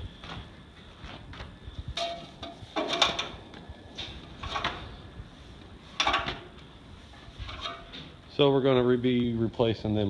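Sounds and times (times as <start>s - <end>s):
bearing scraping and grinding: 1.0s - 5.0s, 5.8s - 8.2s.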